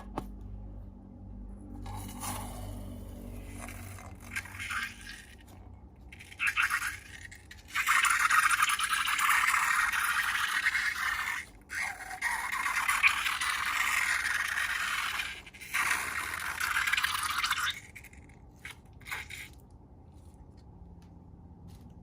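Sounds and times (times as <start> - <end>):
slime scraping: 1.8 - 20.6.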